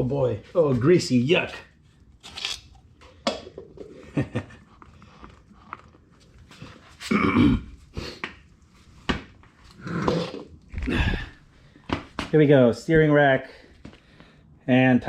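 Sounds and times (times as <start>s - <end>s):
throaty grunt-like sound: 7.0s - 7.8s, 9.8s - 11.5s.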